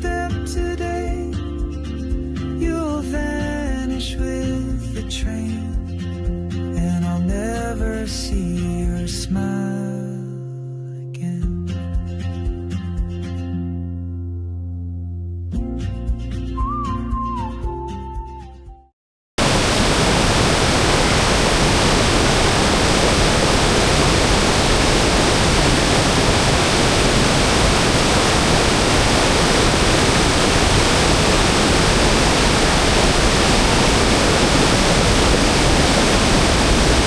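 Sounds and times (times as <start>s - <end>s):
waterfall rushing water: 19.4s - 37.0s.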